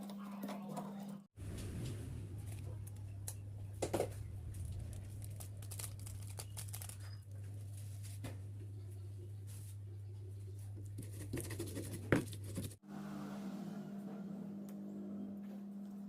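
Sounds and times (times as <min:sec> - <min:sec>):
steady low hum: 0:01.4 - 0:11.0.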